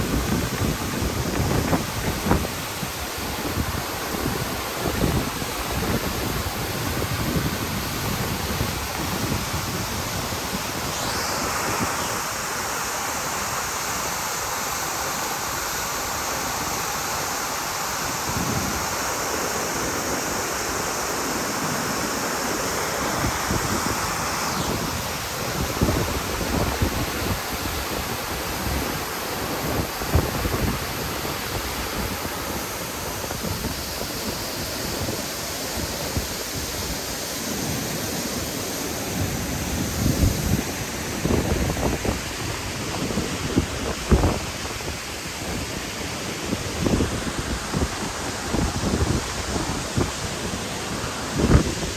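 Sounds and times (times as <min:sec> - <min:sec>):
wind buffeting microphone: 0:00.0 - 0:12.3, 0:23.0 - 0:37.0, 0:39.1 - 0:51.9
waterfall rushing: 0:00.0 - 0:51.9.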